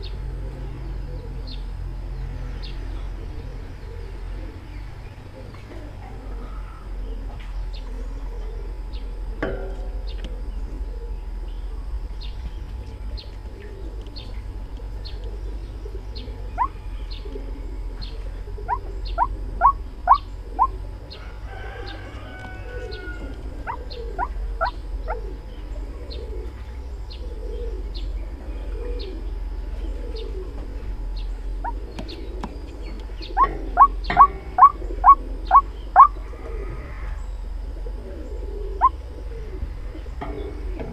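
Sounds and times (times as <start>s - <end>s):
low steady hum: 0.0s - 40.9s
bird calling sharp rising notes: 13.1s - 26.6s, 31.4s - 37.3s.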